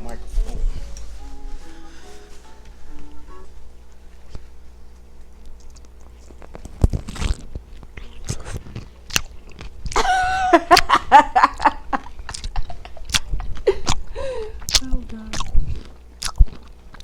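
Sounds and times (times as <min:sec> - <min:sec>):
crunchy chewing of a pickle: 0:05.1 - 0:10.0, 0:12.0 - 0:17.0.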